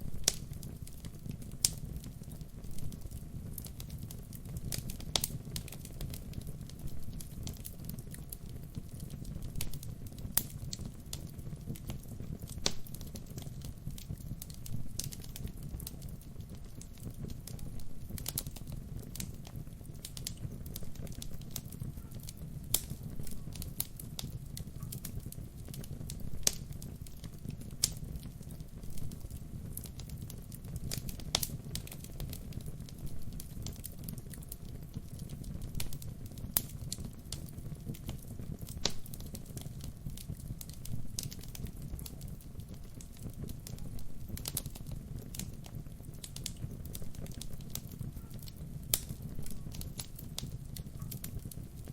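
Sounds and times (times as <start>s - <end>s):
fire flames rumbling: 0.0s - 51.9s
logs crackling and popping: 0.0s - 51.9s.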